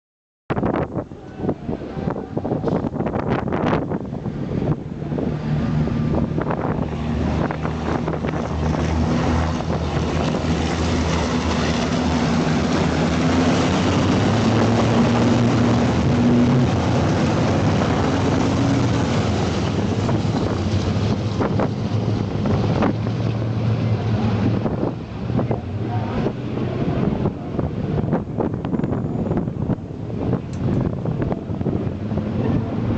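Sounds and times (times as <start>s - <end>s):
wind noise on microphone: 0.5s - 32.9s
truck diesel engines running hard: 0.8s - 32.9s.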